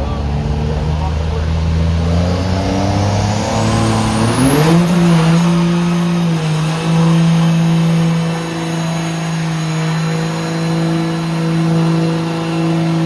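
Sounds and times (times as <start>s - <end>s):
truck engine revving: 0.0s - 13.0s
thin high whistle: 3.6s - 13.0s.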